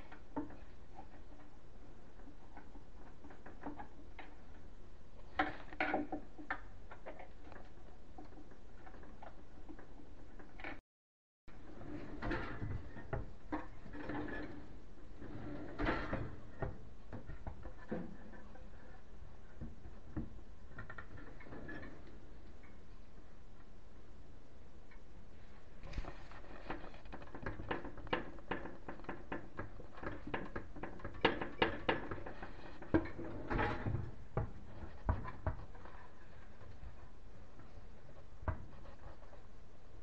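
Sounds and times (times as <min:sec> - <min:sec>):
drawer runners scraping: 0:11.6 - 0:16.8, 0:26.3 - 0:36.5.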